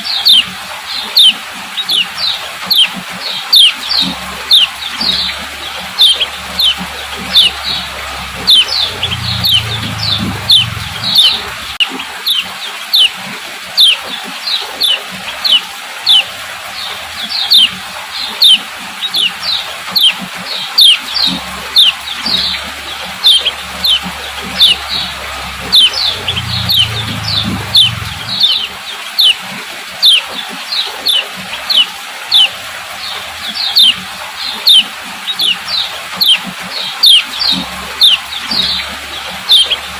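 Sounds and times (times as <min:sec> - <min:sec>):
bird chip calls: 0:00.0 - 0:16.3, 0:16.9 - 0:29.4, 0:30.0 - 0:39.9
faint low hum: 0:04.0 - 0:11.8, 0:21.3 - 0:28.8.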